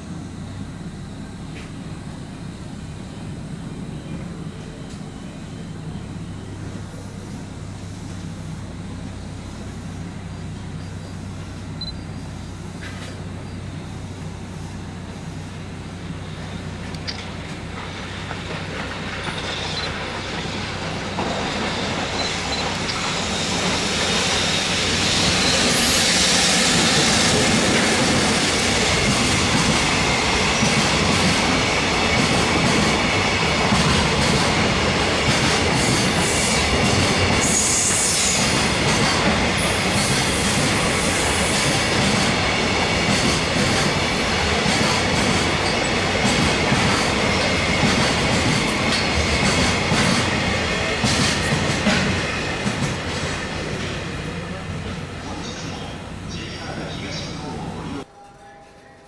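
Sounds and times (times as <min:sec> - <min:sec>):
train wheels rumbling on rails: 0:00.0 - 0:58.1
wheels clattering over rail joints: 0:16.8 - 0:23.3
brief high wheel squeals: 0:19.2 - 0:20.1, 0:21.4 - 0:26.6.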